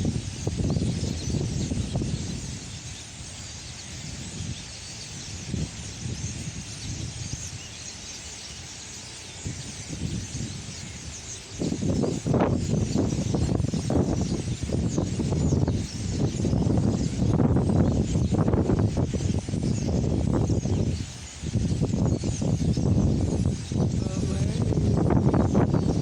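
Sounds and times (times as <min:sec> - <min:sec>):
flock of birds chattering: 0:00.0 - 0:26.0
low rumbling bursts: 0:22.8 - 0:26.0.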